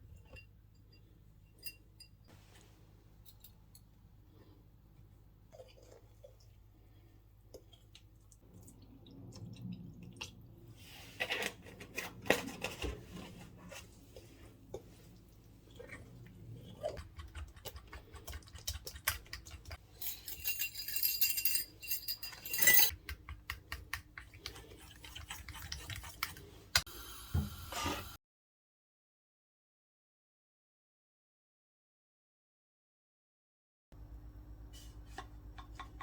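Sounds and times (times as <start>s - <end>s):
dishes and utensils clinking: 19.9s - 23.0s.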